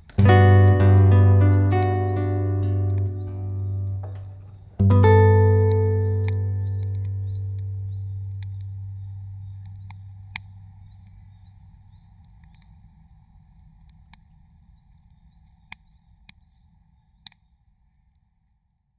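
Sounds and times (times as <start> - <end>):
campfire crackling and popping: 0.0 - 17.4
low hum: 0.2 - 11.6
faint high chirping: 0.2 - 13.0.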